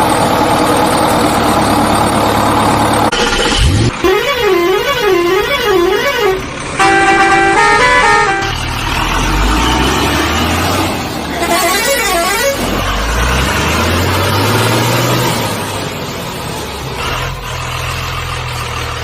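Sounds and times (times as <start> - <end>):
toy beeping horn tune: 3.1 - 8.6.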